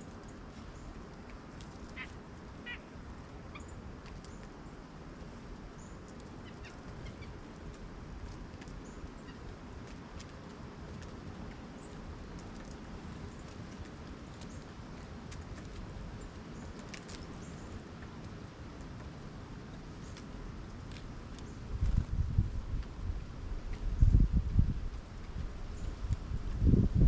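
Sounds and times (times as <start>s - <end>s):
harsh bird calls: 1.9s - 2.9s.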